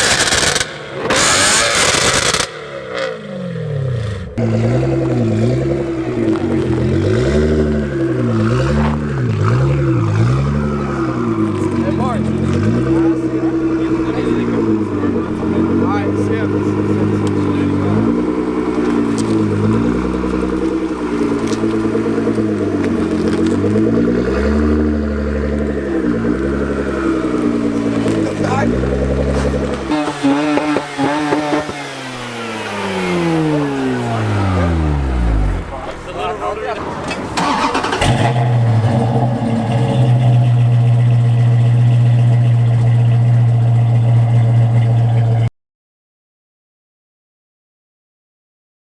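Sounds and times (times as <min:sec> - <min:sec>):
car engine and exhaust: 0:00.0 - 0:45.5.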